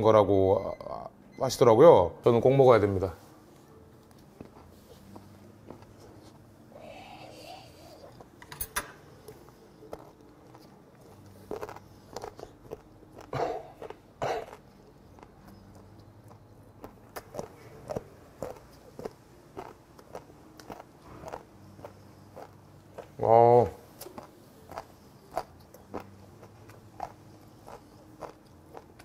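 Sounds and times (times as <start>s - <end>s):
person chewing crunchy food: 9.2s - 29.0s.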